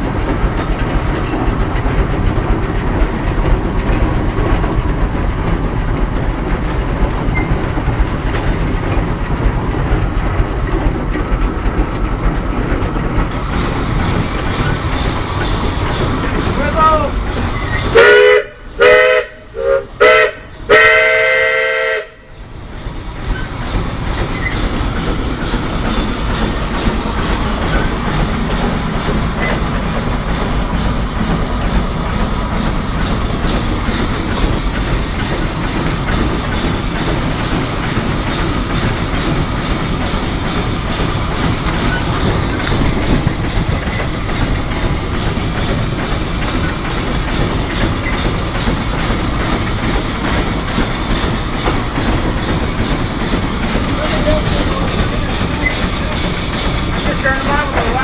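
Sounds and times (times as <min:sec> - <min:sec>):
locomotive rumble and rail clatter: 0:00.0 - 0:58.0
steam locomotive whistle: 0:17.7 - 0:22.3.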